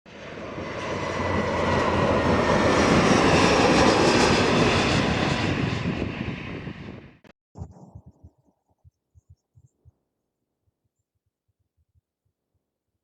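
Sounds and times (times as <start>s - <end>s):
airliner engines roaring: 0.1s - 7.2s.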